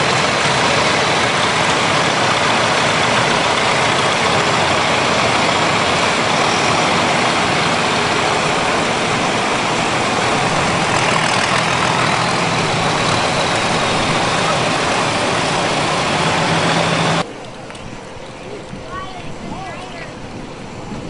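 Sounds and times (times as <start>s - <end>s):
tractor engines running: 0.0s - 21.0s.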